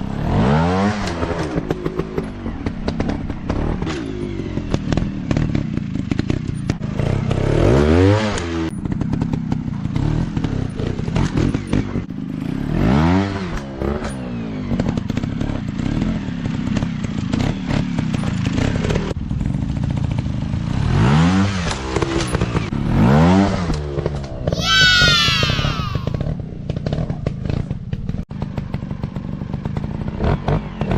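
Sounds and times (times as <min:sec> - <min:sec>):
dirt bike engines revving: 0:24.5 - 0:27.6.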